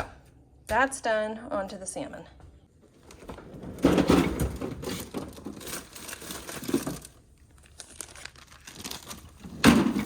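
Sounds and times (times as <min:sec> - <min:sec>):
plastic bags crinkling: 0:05.5 - 0:09.5.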